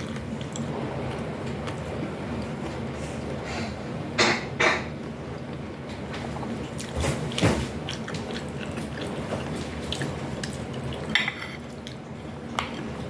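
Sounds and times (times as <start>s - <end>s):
utensils clinking on plates: 11.1s - 11.7s.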